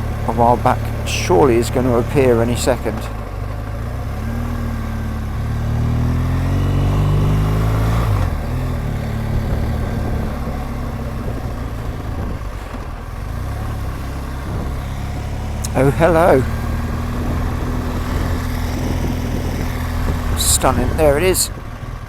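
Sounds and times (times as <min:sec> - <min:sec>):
motorcycle engine accelerating: 0:00.0 - 0:22.0
wind noise: 0:08.1 - 0:13.0, 0:14.4 - 0:14.9, 0:16.4 - 0:21.9.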